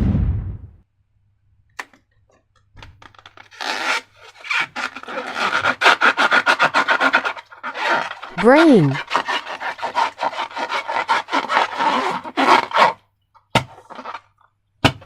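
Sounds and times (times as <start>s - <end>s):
rapid rubbing and scraping strokes: 3.4s - 13.0s.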